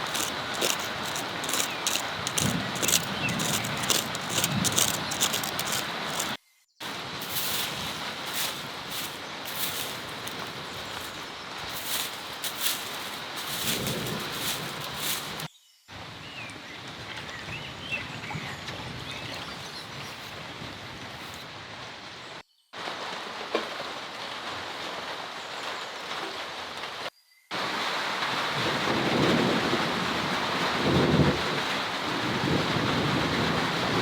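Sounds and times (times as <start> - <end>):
heavy rain pouring: 0.0 - 15.5, 27.6 - 34.0.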